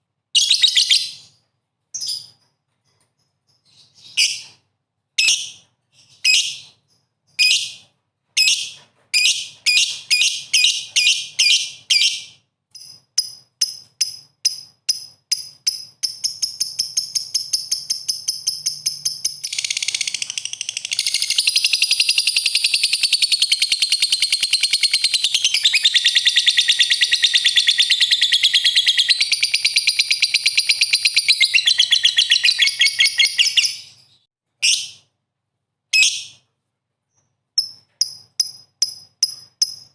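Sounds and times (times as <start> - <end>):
songbird chattering song: 9.8 - 34.9
songbird piping and trilling: 21.0 - 34.2.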